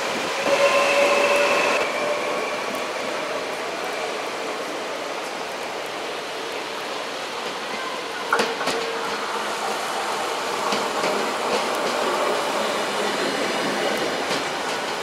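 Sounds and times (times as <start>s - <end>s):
electric train approaching: 0.0s - 15.0s
wheels clicking on rails: 7.2s - 15.0s.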